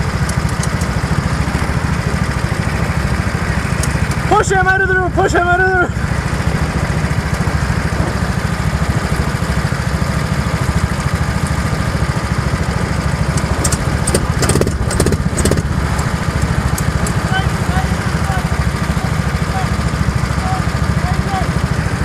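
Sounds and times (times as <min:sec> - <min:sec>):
engine running steadily: 0:00.0 - 0:22.0
short clicks or knocks: 0:13.4 - 0:16.1.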